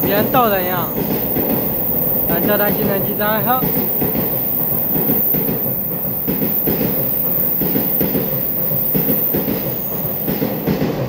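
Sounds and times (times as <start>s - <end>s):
train clatter: 0.0s - 11.0s
train wheels rumbling on track: 0.0s - 11.0s.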